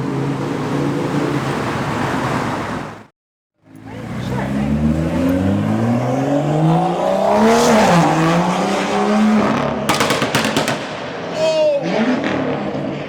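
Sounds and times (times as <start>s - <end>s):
car engine accelerating: 3.6s - 9.9s.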